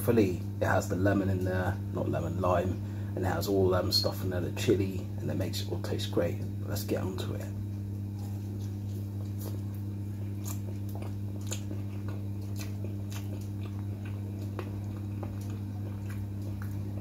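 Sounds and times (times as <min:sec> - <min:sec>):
steady low hum: 0:00.0 - 0:17.0
person chewing chicken wing: 0:07.8 - 0:17.0.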